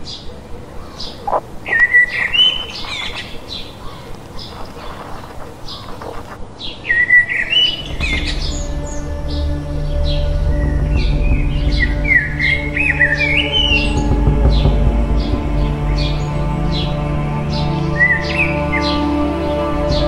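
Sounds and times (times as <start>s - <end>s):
birds chirping and whistling: 0.0s - 19.2s
low music drone: 6.4s - 20.0s.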